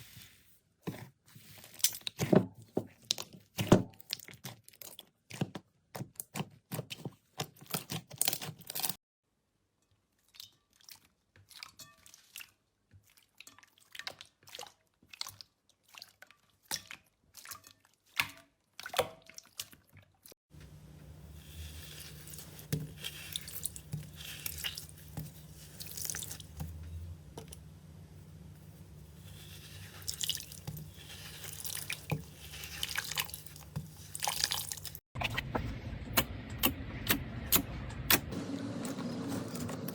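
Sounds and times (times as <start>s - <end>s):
low steady hum: 20.6s - 39.8s.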